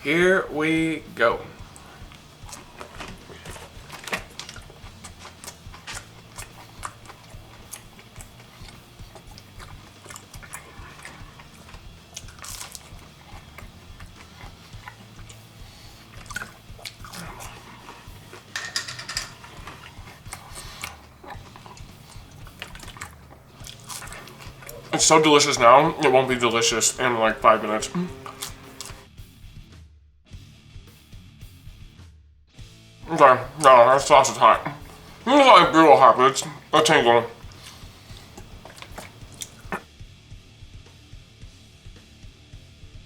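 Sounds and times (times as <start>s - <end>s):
man chewing food: 1.4s - 29.1s, 33.1s - 39.9s.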